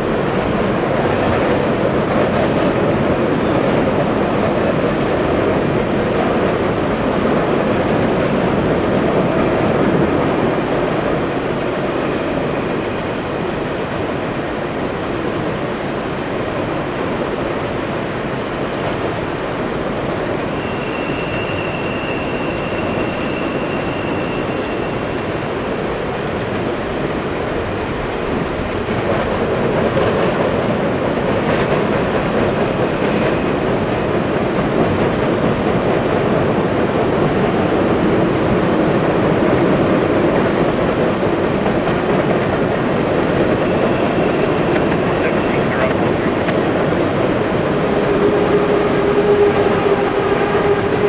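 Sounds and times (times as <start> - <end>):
train cars rumbling on rails: 0.0 - 51.0
high wheel squeal: 20.4 - 25.6, 43.6 - 45.6.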